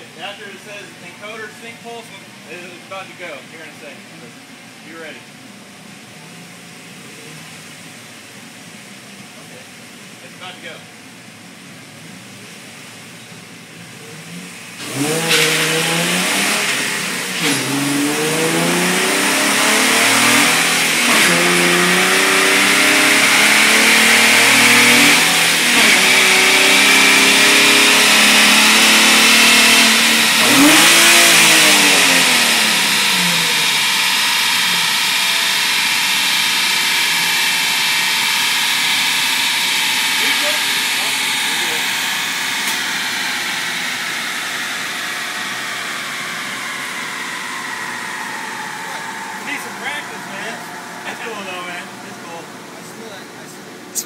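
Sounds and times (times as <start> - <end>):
car engine revving at full throttle: 13.8 - 54.0
dyno whirring hiss: 14.7 - 54.0.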